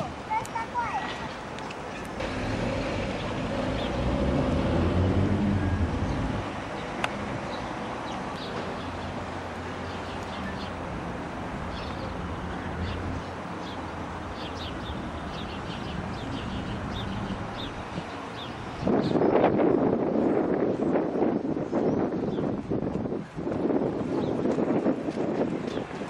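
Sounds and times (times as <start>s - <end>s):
birds chirping: 0.3s - 4.4s, 5.5s - 19.4s.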